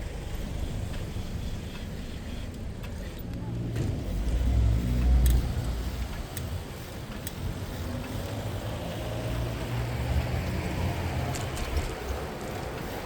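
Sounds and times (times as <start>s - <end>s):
engine and tyre rumble: 0.0s - 13.0s
motor vehicle passing: 3.4s - 13.0s.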